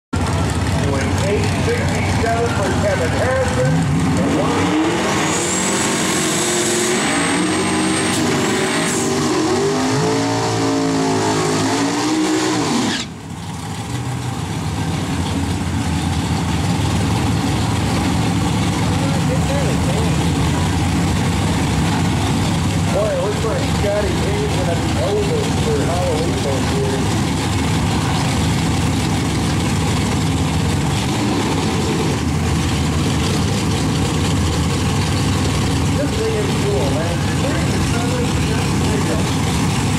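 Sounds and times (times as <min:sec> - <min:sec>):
pickup engine revving: 0:00.2 - 0:39.9.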